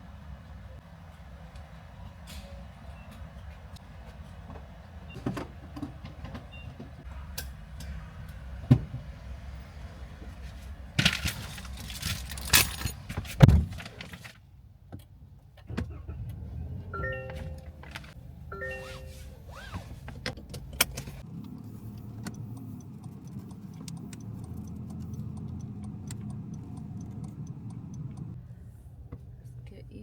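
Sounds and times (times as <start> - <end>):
car engine idling: 16.8 - 30.0
short electronic beeps: 18.5 - 19.3.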